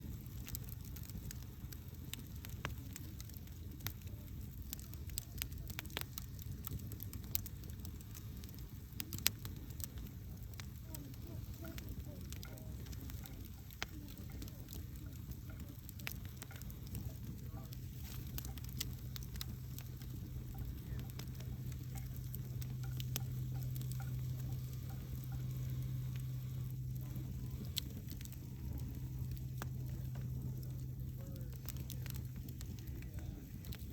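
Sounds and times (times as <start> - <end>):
fire crackling and popping: 0.0 - 33.9
low hum: 10.5 - 33.9.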